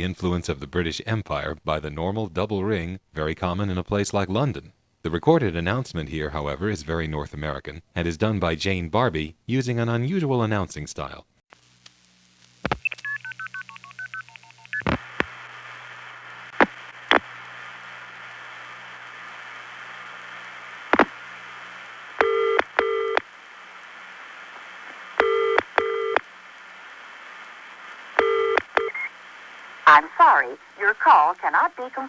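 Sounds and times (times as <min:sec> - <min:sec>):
phone line hiss: 0:22.2 - 0:23.3, 0:25.2 - 0:26.2, 0:28.1 - 0:29.2.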